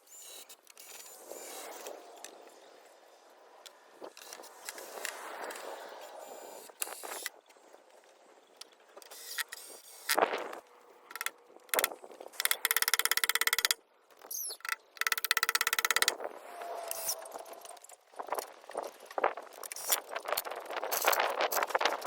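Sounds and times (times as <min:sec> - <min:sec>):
impact driver rattling: 0:11.1 - 0:13.8, 0:14.6 - 0:16.2.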